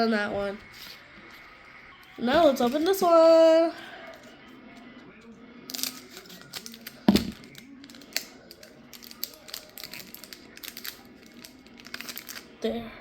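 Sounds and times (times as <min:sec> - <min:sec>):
foil wrapper crinkling: 0:05.7 - 0:12.6.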